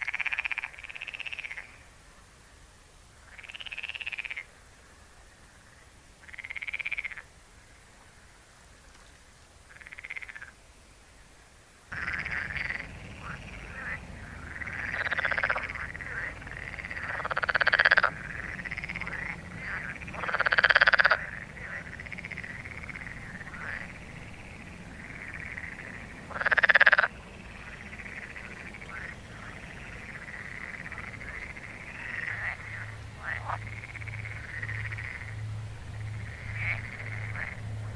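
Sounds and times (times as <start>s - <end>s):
frogs croaking: 0.0s - 2.0s, 3.2s - 8.4s, 9.7s - 11.0s, 11.9s - 37.9s
background hum: 0.0s - 37.9s.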